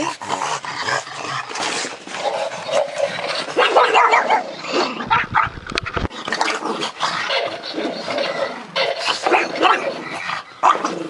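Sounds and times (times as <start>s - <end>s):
dogs barking and whining: 0.0s - 11.0s
low thuds: 5.1s - 6.1s.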